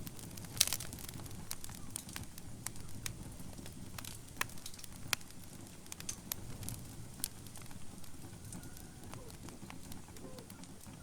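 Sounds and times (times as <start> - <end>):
wood fire crackling and popping: 0.0 - 11.0.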